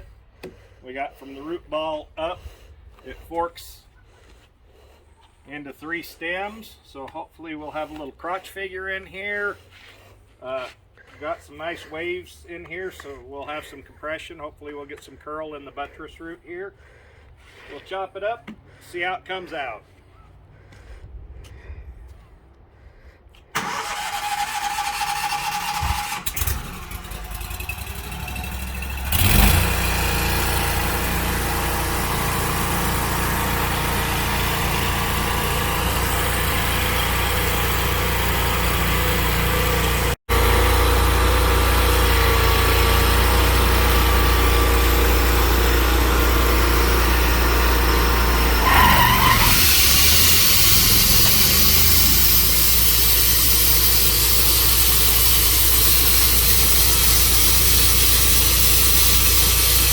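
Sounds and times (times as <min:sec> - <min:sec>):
engine running: 0:23.6 - 0:59.9.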